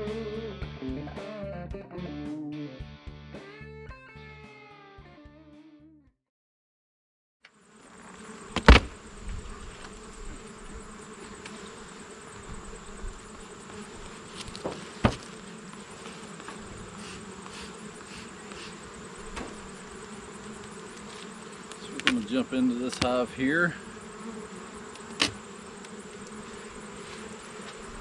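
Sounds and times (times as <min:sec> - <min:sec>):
honeybees buzzing: 0:07.5 - 0:28.0
sharp knocks: 0:08.6 - 0:08.9, 0:14.6 - 0:15.3.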